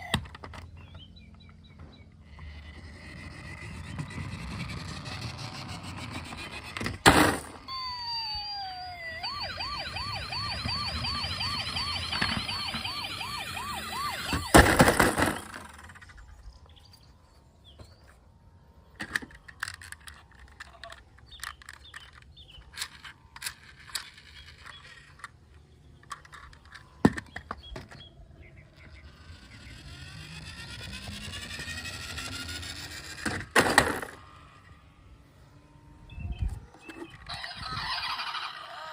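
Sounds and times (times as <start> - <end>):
toy electronic siren warbling: 0.0 - 0.3, 2.3 - 18.0, 26.1 - 33.3, 34.0 - 38.9
plastic toys clicking and knocking: 0.0 - 1.0, 18.9 - 28.1
toy sound effect with rising tones: 2.2 - 17.4, 27.8 - 38.9
plastic clatter: 26.0 - 28.1.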